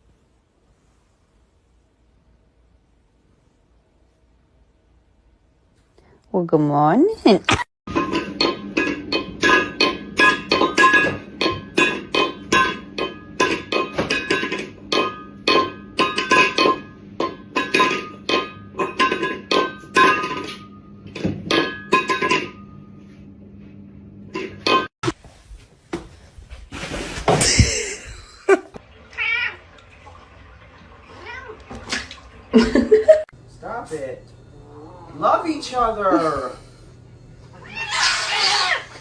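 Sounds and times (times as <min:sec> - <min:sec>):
cat meowing: 0:37.5 - 0:39.0.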